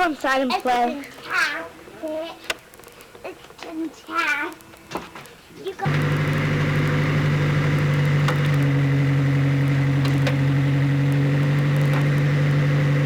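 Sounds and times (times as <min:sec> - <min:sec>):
higher hum: 0:05.9 - 0:13.0
vehicle engine idling: 0:05.9 - 0:13.0.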